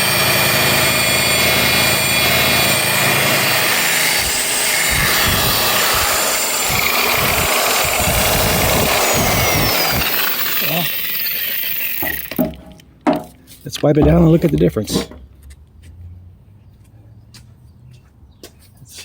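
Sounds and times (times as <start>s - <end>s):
electric polisher running: 0.0s - 12.5s.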